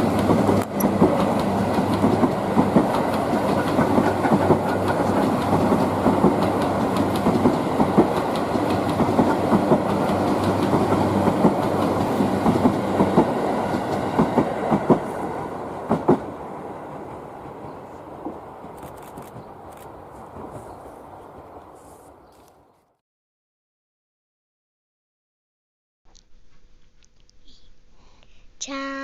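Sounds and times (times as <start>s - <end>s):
train wheels clattering: 0.0s - 16.3s.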